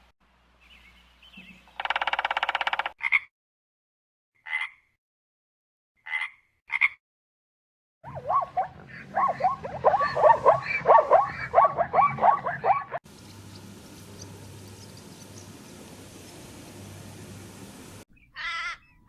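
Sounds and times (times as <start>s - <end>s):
animal calls: 8.1s - 13.0s
chorus of overlapping animal calls: 8.1s - 15.8s.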